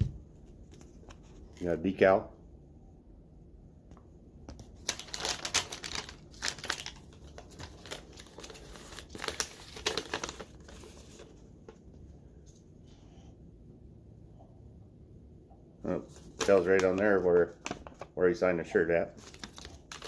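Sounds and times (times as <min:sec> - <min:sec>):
packaging crinkling and rustling: 0:04.5 - 0:11.8, 0:16.0 - 0:18.2, 0:19.1 - 0:20.0.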